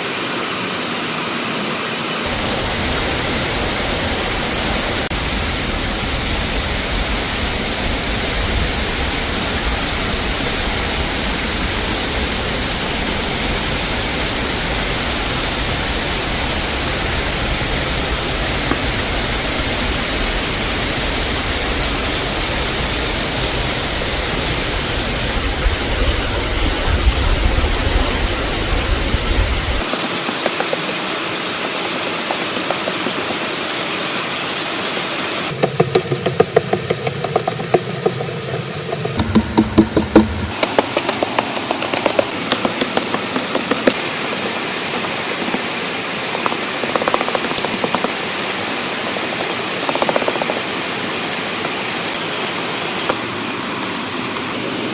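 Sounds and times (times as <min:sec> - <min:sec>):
rushing water: 0:00.0 - 0:54.9.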